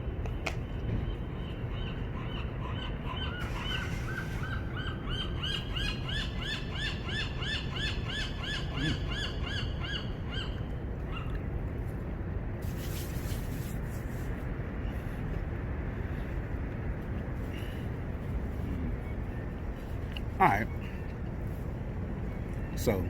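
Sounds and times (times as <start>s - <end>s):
low background rumble: 0.0s - 22.7s.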